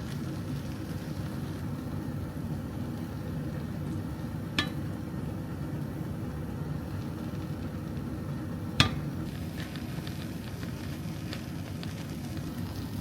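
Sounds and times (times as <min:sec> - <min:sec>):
low kitchen hum: 0:00.0 - 0:13.0
sharp clink: 0:04.6 - 0:04.8.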